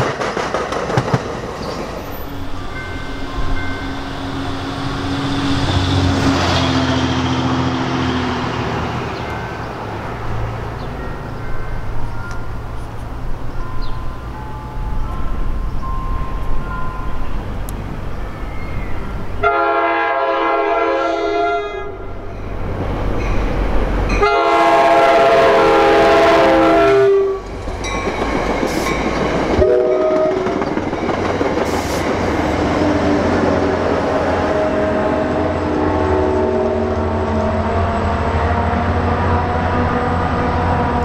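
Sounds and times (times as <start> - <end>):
wheels clicking over rail joints: 0.0 - 3.6, 27.4 - 33.6
train wheels rumbling: 0.0 - 41.0
train horn blasts: 19.4 - 22.2, 24.2 - 27.5, 29.6 - 30.6, 32.8 - 38.0.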